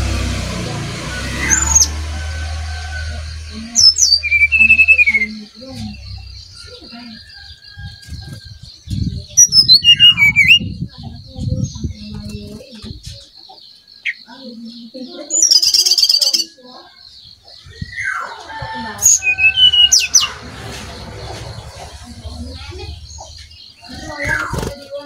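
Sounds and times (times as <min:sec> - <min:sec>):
bird whistling song: 0:01.1 - 0:01.9, 0:03.5 - 0:12.6, 0:13.7 - 0:20.4
low hum: 0:18.8 - 0:23.9
low thuds: 0:19.6 - 0:24.5.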